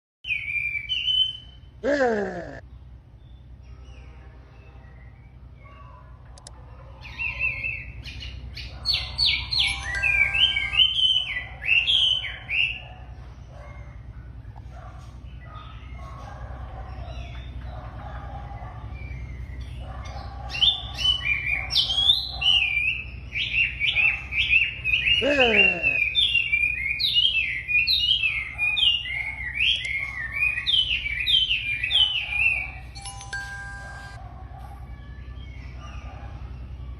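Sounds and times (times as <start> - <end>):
bird whistled song: 0.2 - 1.8, 7.0 - 13.0, 18.4 - 33.0.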